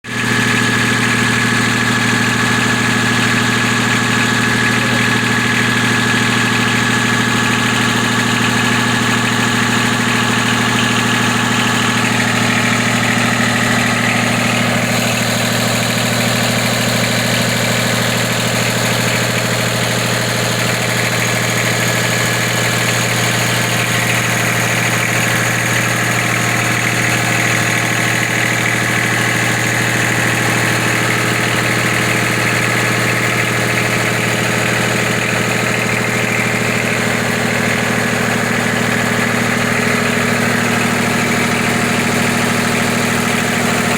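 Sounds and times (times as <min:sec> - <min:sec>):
engines droning: 0:00.1 - 0:43.9.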